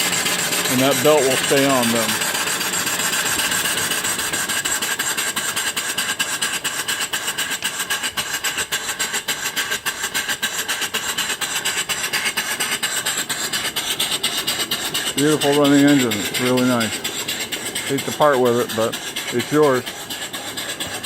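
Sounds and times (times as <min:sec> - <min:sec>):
steam engine beating: 0:00.0 - 0:21.0
steam hiss: 0:00.0 - 0:21.0.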